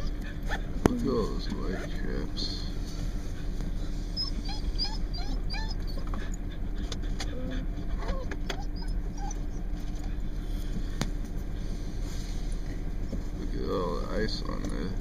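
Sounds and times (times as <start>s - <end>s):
dog whimpering: 0.0s - 2.0s, 4.1s - 10.3s.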